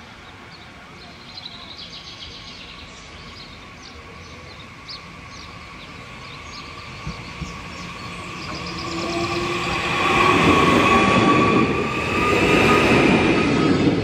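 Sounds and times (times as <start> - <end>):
electric train approaching: 0.0 - 14.0
small birds chirping: 0.2 - 9.4.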